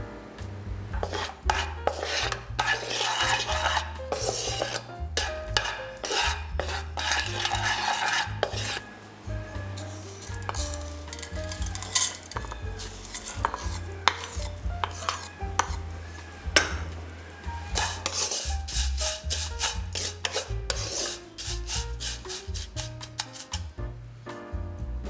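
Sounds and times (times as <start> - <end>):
background music with bass line: 0.0 - 25.0
spatula scraping noodles in a pan: 1.0 - 23.7.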